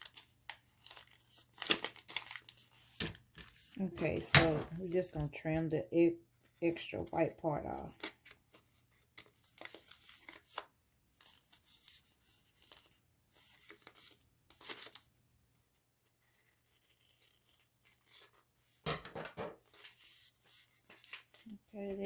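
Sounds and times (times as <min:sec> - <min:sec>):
scissors snipping paper: 0:16.3 - 0:18.4.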